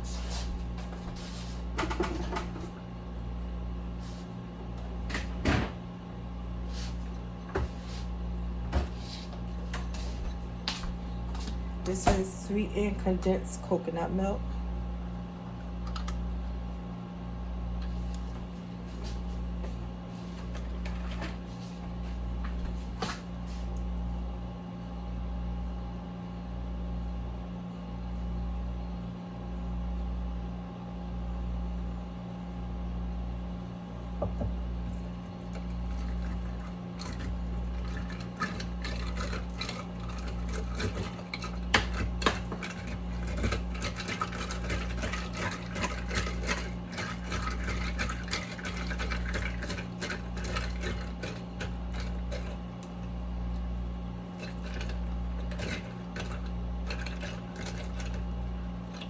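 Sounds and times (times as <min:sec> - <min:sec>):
low appliance hum: 0:00.0 - 0:59.0
kitchenware clicking and clinking: 0:35.4 - 0:52.6, 0:54.4 - 0:58.2.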